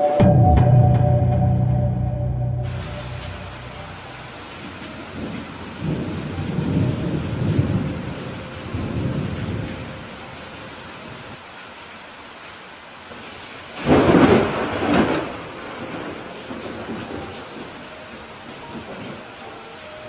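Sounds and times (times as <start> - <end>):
thunder rumbling: 0.3 - 10.2, 13.8 - 17.8
steady rain falling: 2.3 - 20.0.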